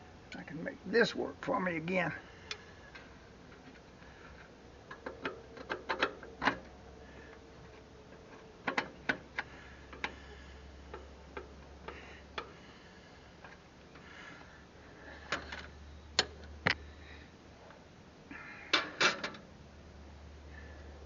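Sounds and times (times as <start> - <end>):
hand tools clicking and tapping: 4.9 - 6.8, 7.7 - 10.2.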